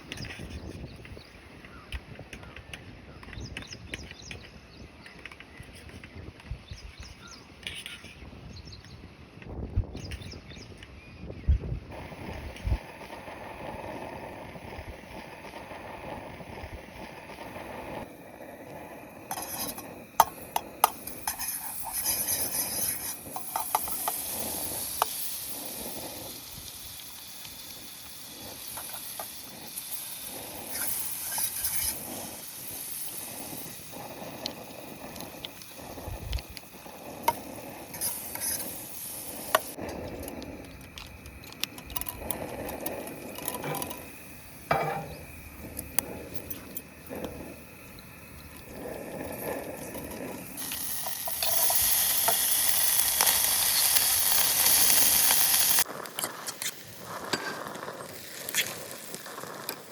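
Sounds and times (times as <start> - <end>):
food sizzling in a pan: 11.9 - 59.9
utensil scraping a pan: 18.8 - 24.3, 36.8 - 47.6.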